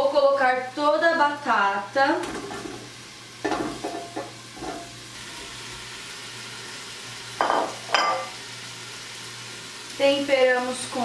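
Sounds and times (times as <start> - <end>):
vegetables sizzling in oil: 0.0 - 11.0
kitchenware clattering: 2.2 - 5.0, 7.4 - 8.4.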